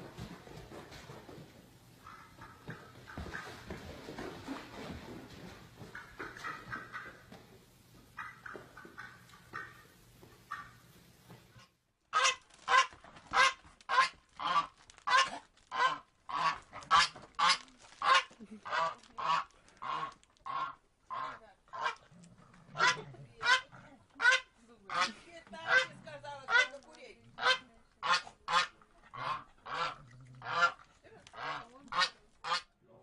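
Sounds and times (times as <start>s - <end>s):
waterfowl honking: 5.9s - 7.2s, 8.2s - 9.8s, 12.1s - 22.0s, 24.2s - 32.7s.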